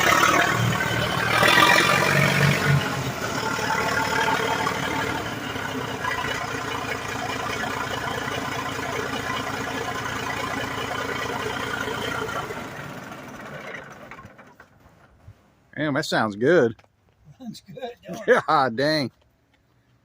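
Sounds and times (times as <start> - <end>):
bulldozer engine idling: 0.0 - 15.2.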